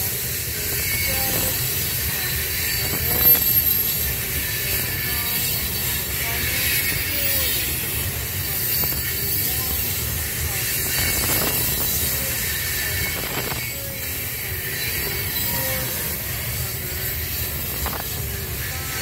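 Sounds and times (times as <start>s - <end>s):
train wheels rumbling on rail: 0.0s - 19.0s
faint wheel squeals: 0.7s - 19.0s.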